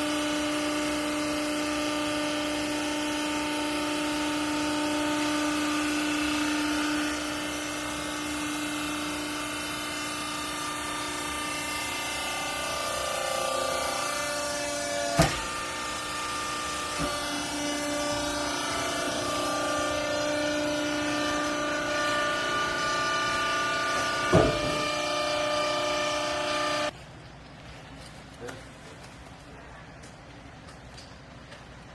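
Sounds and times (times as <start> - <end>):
baler motor and pump whining: 0.0 - 27.0
sharp knock: 24.3 - 24.8.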